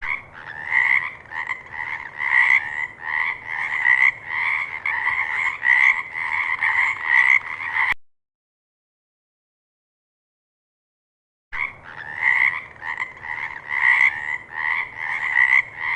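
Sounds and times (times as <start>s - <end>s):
frog croaking: 0.0s - 8.0s, 11.6s - 15.9s.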